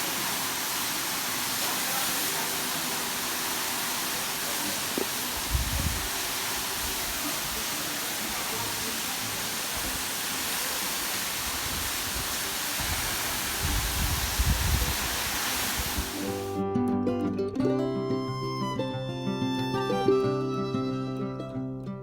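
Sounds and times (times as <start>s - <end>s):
waterfall rushing: 0.0s - 16.5s
wind buffeting microphone: 5.3s - 7.2s, 11.4s - 16.2s.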